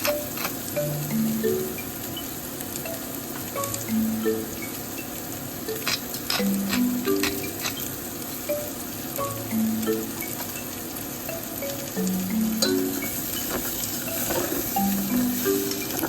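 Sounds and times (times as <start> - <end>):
utensil clicking on a pan: 0.0 - 0.8, 5.7 - 8.0
food sizzling in a frying pan: 0.0 - 16.0.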